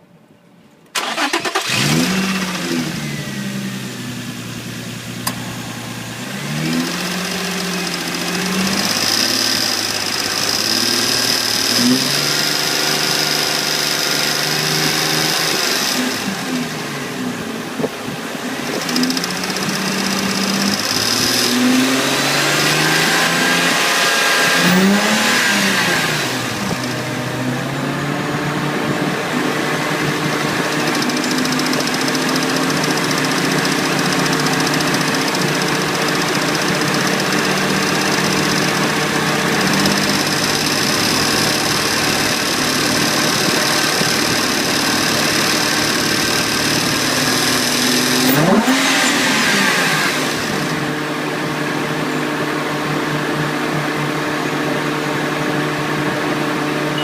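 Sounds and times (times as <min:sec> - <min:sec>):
engine revving: 0:01.0 - 0:04.0, 0:05.2 - 0:17.2, 0:18.6 - 0:51.0
ticking sound: 0:18.8 - 0:21.5, 0:30.8 - 0:38.8, 0:39.6 - 0:41.6.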